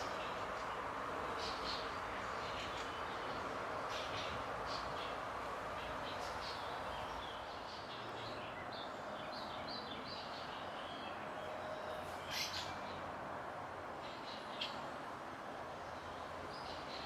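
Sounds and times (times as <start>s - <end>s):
small songbirds chirping: 0.0s - 13.0s.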